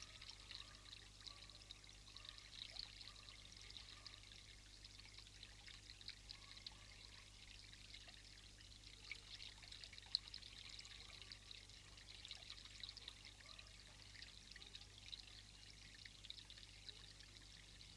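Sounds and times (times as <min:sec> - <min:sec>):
small irregular ticks: 0:00.0 - 0:17.9
trickle of running water: 0:00.0 - 0:17.9.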